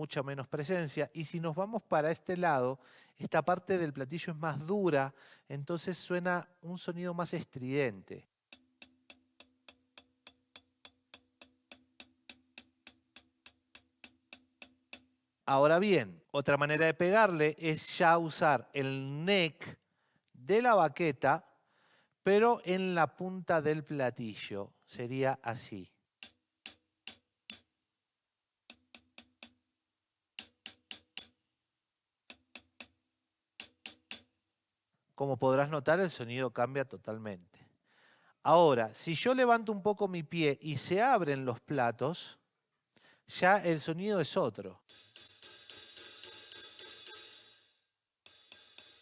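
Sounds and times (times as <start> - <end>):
closed hi-hat strokes: 8.5 - 15.2, 26.2 - 27.7, 28.7 - 29.6, 30.4 - 31.4, 32.3 - 33.0, 33.6 - 34.4, 44.9 - 49.0.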